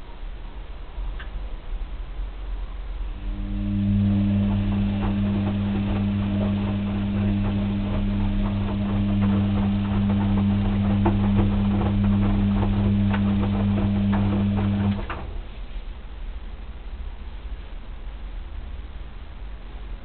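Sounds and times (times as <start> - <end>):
washing machine motor hum: 3.0 - 15.7
drum clicks and knocks: 4.7 - 15.2.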